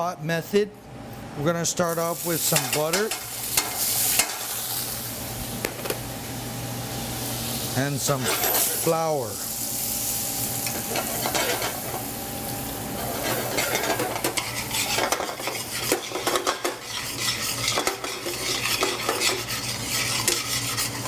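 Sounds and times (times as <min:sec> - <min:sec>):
light sizzle: 0:01.8 - 0:21.0
utensil scraping a pot: 0:13.0 - 0:21.0.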